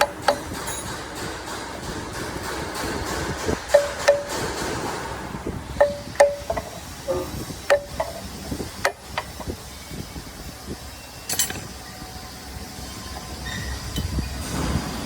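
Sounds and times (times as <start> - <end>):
metal-on-metal taps and clinks: 3.7 - 4.6, 5.8 - 8.2, 11.3 - 11.7.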